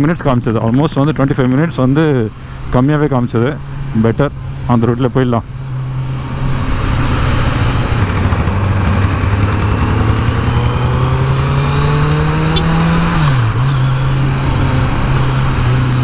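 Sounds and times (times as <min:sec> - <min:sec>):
motorcycle engine accelerating: 0:05.4 - 0:16.0.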